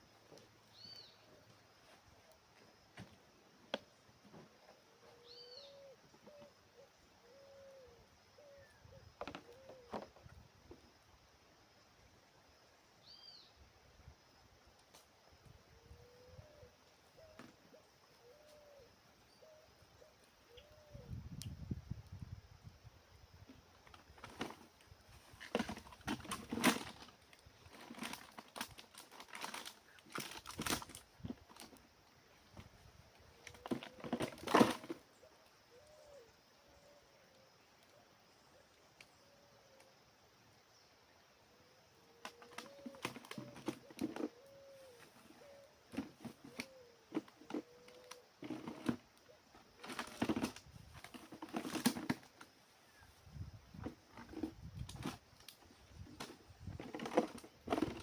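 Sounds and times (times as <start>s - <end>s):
faint bird calls: 0.3s - 3.1s, 3.8s - 10.4s, 15.4s - 21.3s, 35.0s - 50.2s, 52.6s - 53.3s
crackling rustles: 23.5s - 35.3s, 42.2s - 58.0s.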